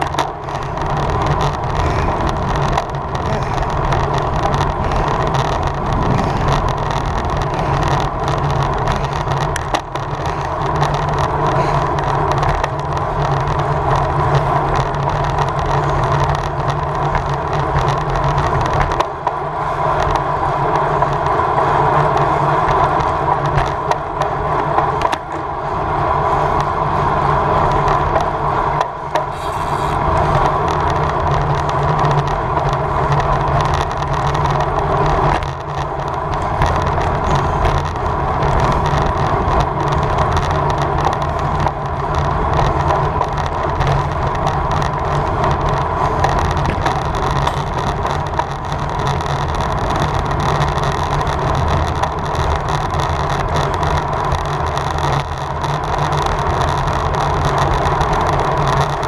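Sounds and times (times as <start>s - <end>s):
wind rush: 0.0s - 9.6s
bicycle tyre noise: 0.0s - 59.0s.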